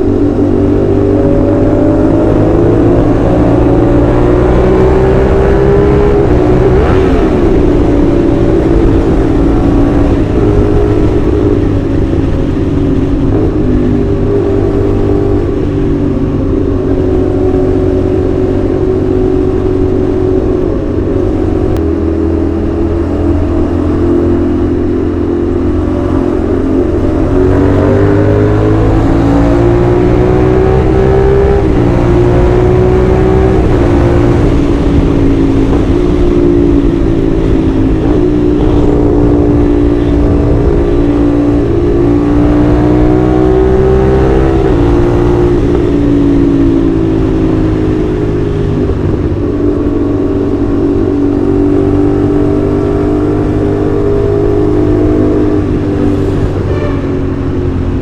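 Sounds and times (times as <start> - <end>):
motorcycle engine and exhaust: 0.0 - 58.0.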